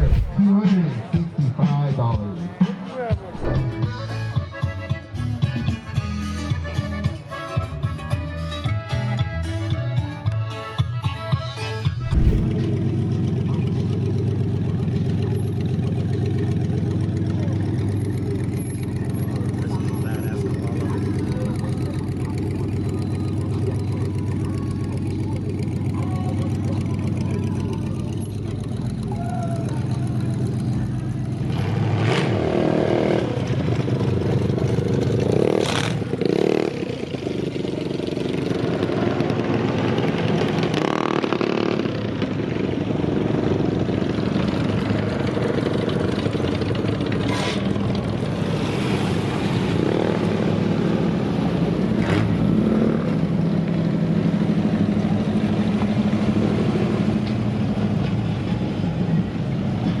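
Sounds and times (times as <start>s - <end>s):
engines revving: 0.0s - 0.4s, 3.4s - 3.9s, 12.0s - 13.4s, 29.8s - 37.4s.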